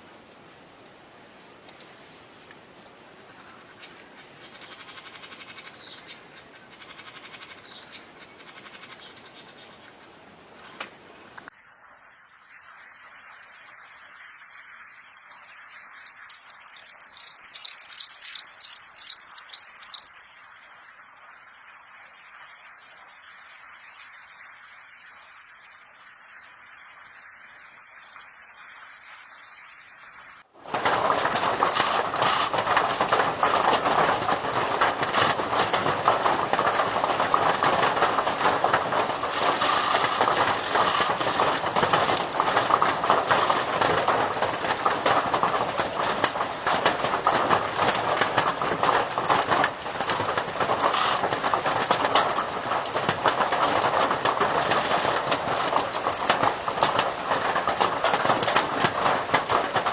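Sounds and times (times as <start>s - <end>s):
many birds calling: 3.1s - 11.5s, 16.1s - 20.2s.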